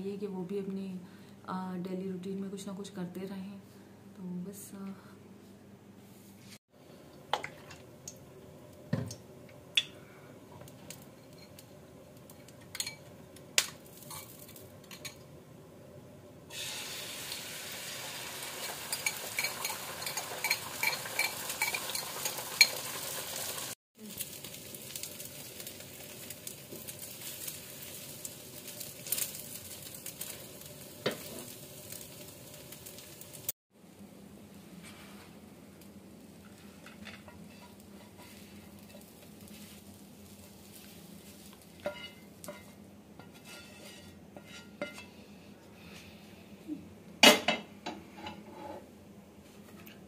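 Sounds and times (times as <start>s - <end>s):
omelette sizzling in oil: 16.5s - 33.6s, 36.2s - 45.0s.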